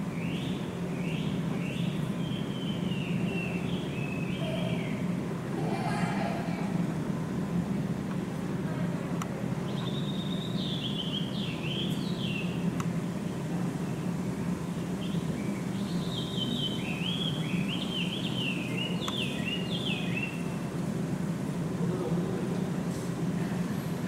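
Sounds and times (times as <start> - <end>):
steady low hum: 0.0 - 24.0
songbird whistling: 9.7 - 12.5.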